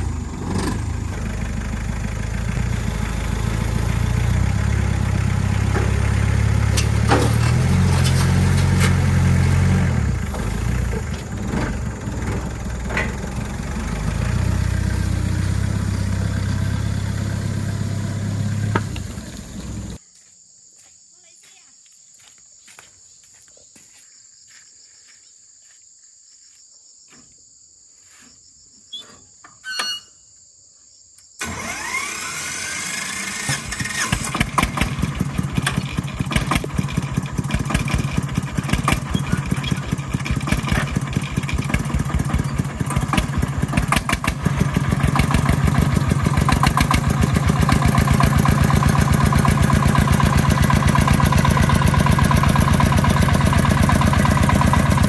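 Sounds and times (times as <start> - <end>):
farm vehicle engine running: 0.0 - 20.0, 31.4 - 55.0
insects chirping: 18.1 - 31.7.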